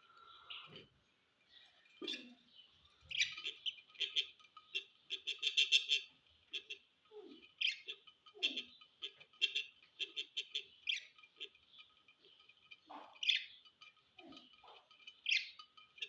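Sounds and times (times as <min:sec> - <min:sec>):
budgerigars chirping: 0:02.0 - 0:06.8, 0:07.4 - 0:13.7, 0:14.3 - 0:15.7.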